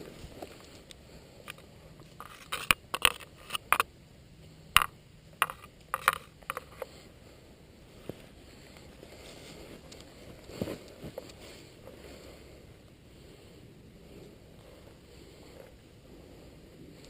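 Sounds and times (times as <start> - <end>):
quiet outdoor background: 0.0 - 17.0
sharp clicks and knocks: 4.8 - 6.9.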